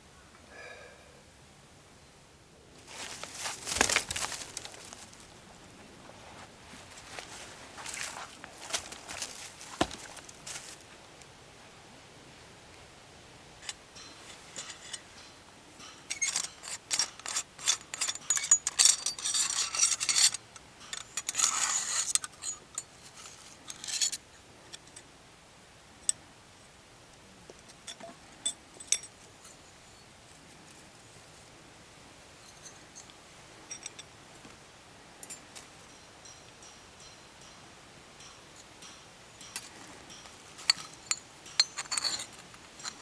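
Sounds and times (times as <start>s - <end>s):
handling rubbing and scraping: 2.8s - 10.8s, 13.6s - 15.2s, 15.8s - 24.2s, 39.5s - 43.0s.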